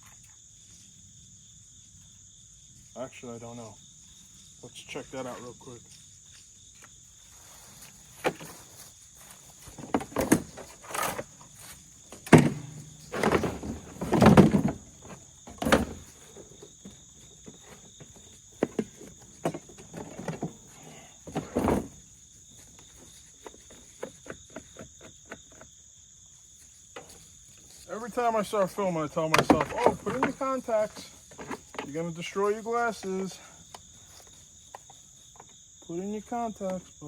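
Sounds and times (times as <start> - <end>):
insects singing: 0.0 - 37.0
knocks thumps and rustles: 7.7 - 25.8, 26.6 - 32.1.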